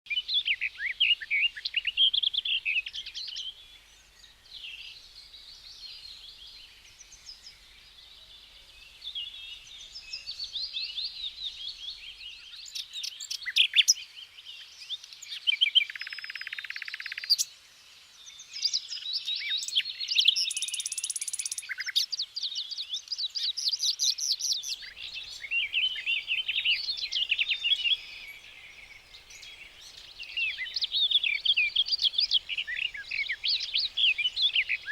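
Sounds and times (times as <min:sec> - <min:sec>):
songbirds singing and chirping: 0:00.1 - 0:34.9
buzzy bird trill: 0:24.6 - 0:34.9
high hissing bird trill: 0:24.7 - 0:34.9.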